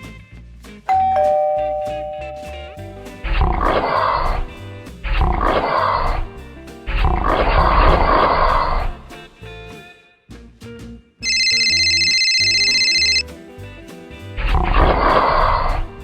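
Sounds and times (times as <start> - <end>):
background music: 0.0 - 16.0
animal sound effects: 6.9 - 9.0.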